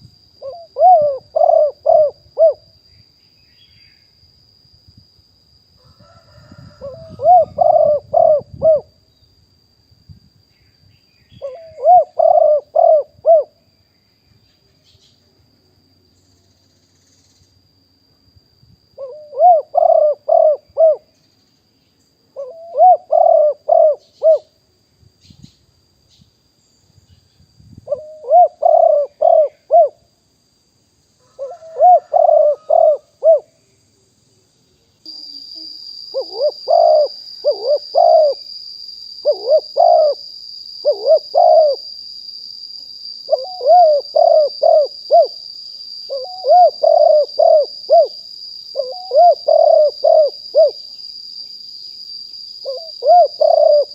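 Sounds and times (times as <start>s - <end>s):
steady high-pitched whine: 0.0s - 53.9s
dove cooing: 0.4s - 2.7s, 6.0s - 9.0s, 11.4s - 13.6s, 19.0s - 21.1s, 22.4s - 24.5s, 27.9s - 30.0s, 31.2s - 33.5s, 35.6s - 38.4s, 39.2s - 40.2s, 40.8s - 41.9s, 43.3s - 45.4s, 46.1s - 50.8s, 52.6s - 53.9s.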